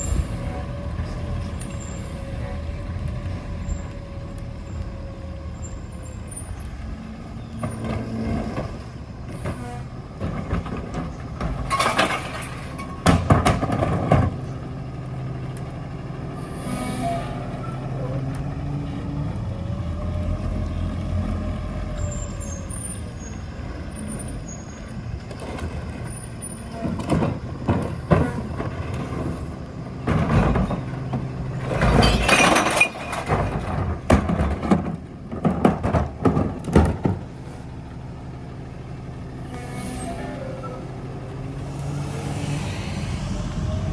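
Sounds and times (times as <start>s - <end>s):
garbage truck engine running: 0.0s - 43.9s
loud bursts of noise: 41.4s - 43.9s.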